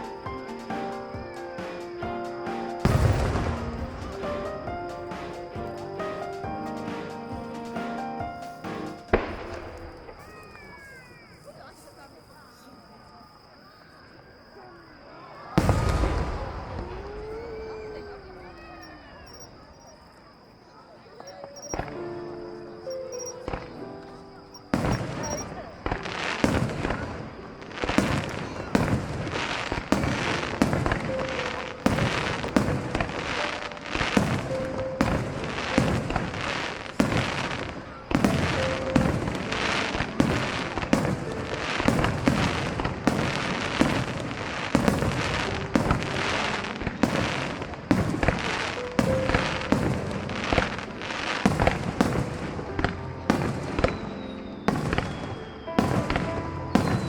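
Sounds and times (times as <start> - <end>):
firework shells bursting: 0.0 - 11.3, 15.6 - 19.5, 24.5 - 57.0
firework crackling: 0.0 - 12.1, 15.5 - 19.9, 21.5 - 57.0.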